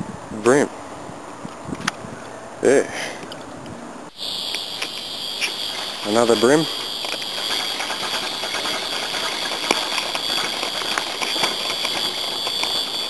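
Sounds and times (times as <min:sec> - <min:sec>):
high insect chorus: 0:04.1 - 0:13.0
fishing reel ticking: 0:04.2 - 0:13.0.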